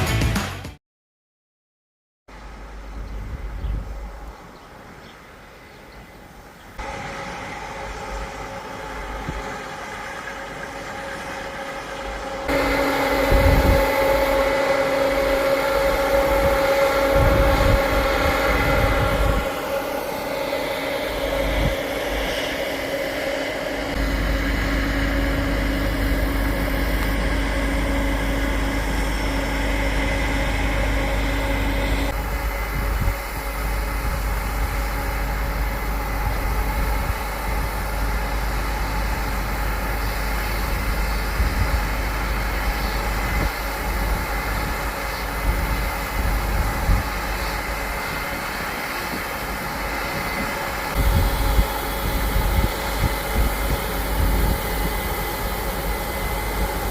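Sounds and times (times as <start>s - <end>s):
harvest machinery engine running: 6.8s - 56.9s
deep rumble: 11.6s - 39.7s.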